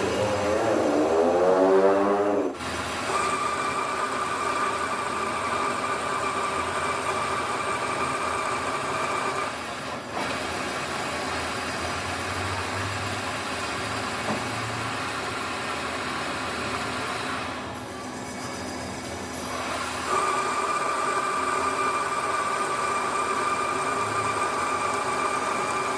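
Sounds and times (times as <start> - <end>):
machine motor whining: 0.0 - 9.6.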